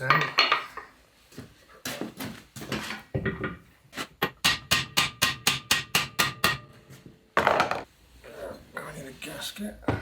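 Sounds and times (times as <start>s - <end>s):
hammer striking metal: 4.2s - 6.8s.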